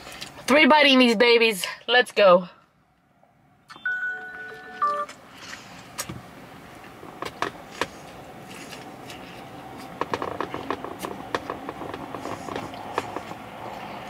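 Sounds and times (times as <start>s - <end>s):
person chewing sandwich: 6.7s - 14.0s.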